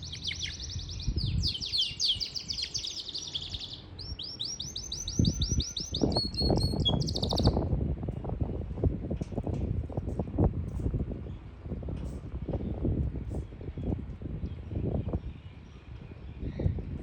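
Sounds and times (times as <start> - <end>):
canary singing trills: 0.0 - 7.7.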